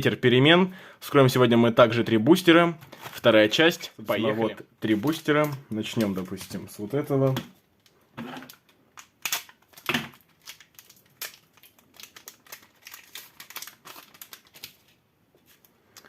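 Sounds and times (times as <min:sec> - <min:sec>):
card wrapper crinkling: 0:08.4 - 0:16.0.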